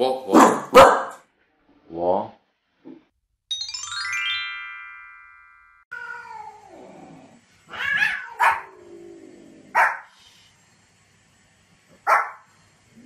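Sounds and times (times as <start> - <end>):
rising bright chime: 3.5 - 5.9
falling animal cry: 7.7 - 8.8
small dog yapping: 7.7 - 8.8, 9.7 - 10.0, 12.1 - 12.4.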